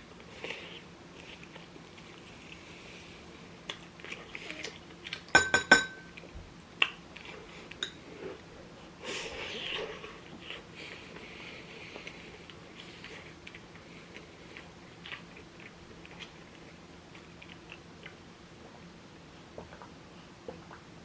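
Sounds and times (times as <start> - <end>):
quiet chewing: 0.2 - 5.3, 6.2 - 8.5, 9.4 - 20.8
utensil clinking on ceramic bowl: 5.4 - 6.2.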